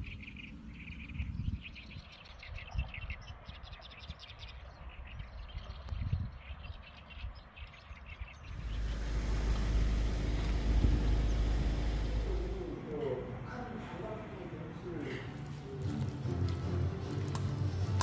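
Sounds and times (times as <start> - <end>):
wind gusts on microphone: 0.0 - 12.5
small birds chirping: 0.0 - 13.0.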